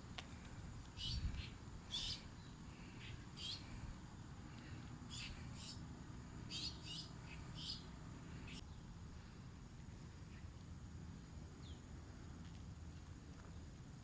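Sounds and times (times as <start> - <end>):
low steady rumble: 0.0 - 14.0
birds calling: 0.3 - 8.9.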